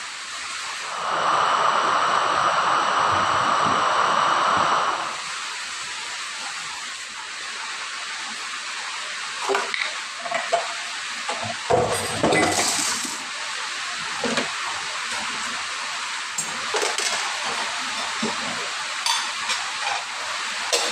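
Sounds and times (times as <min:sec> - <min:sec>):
steady hiss: 0:00.0 - 0:20.9
dishes and glasses clinking: 0:11.8 - 0:13.0, 0:19.0 - 0:20.1.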